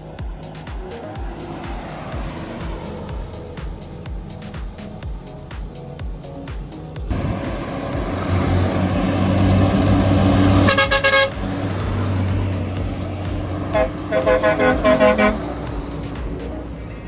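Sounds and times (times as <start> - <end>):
truck engine droning: 0.0 - 17.0
truck horn: 7.1 - 16.1.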